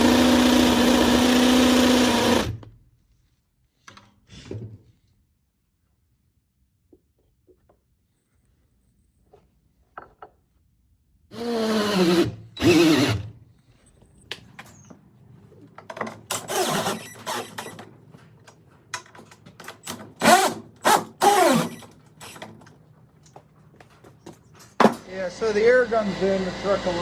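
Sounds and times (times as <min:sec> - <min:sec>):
power drill straining: 0:00.0 - 0:02.7, 0:11.3 - 0:13.4, 0:16.1 - 0:17.9, 0:19.6 - 0:22.8.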